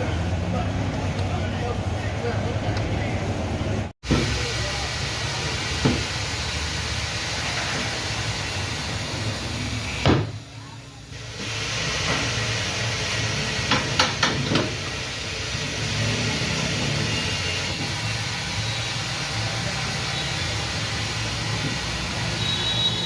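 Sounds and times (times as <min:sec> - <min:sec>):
workshop background noise: 0:00.0 - 0:23.0.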